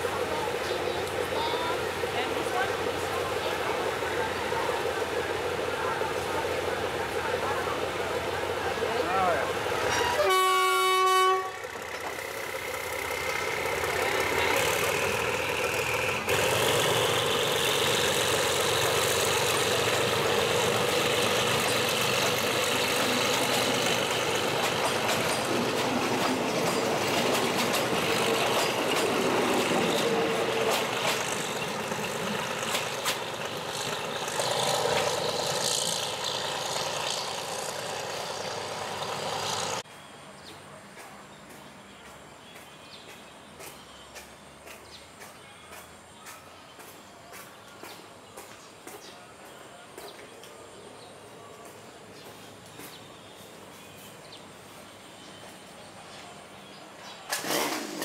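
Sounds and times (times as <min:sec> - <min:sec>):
high wheel squeal: 0:09.8 - 0:10.3
diesel train horn blast: 0:09.8 - 0:12.0
train wheels clattering on rails: 0:11.6 - 0:39.8.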